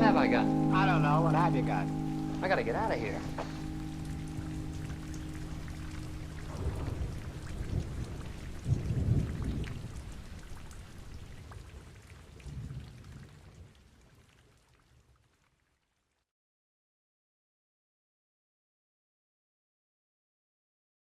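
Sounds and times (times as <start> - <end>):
steady rain: 0.0 - 15.9
low thunder rumbles: 3.2 - 11.8, 12.4 - 13.6.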